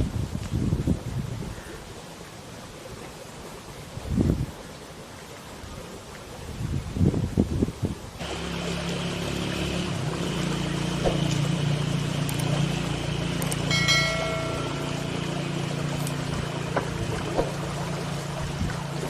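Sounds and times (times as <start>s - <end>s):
rushing water-like noise: 0.0s - 19.0s
low mechanical hum: 8.2s - 19.0s.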